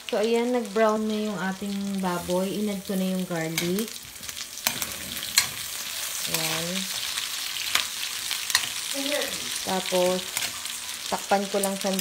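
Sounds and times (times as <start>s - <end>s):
meat sizzling in oil: 0.0s - 12.0s
metal spatula scraping wok: 3.4s - 11.1s.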